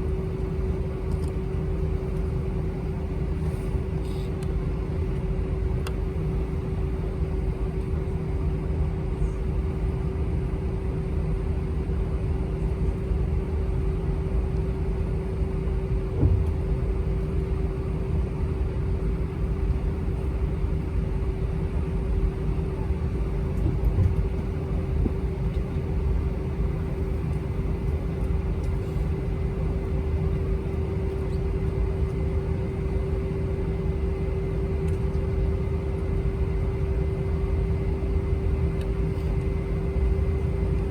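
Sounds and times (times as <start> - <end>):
jet engines idling in cabin: 0.0 - 40.9.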